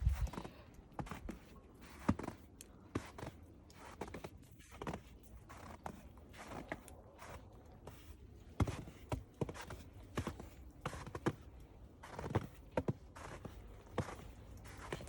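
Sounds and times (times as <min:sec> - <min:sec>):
footsteps crunching in snow: 0:03.0 - 0:15.0.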